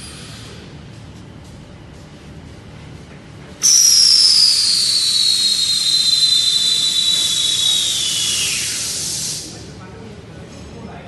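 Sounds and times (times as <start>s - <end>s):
air hissing with a whistle: 3.6s - 9.7s.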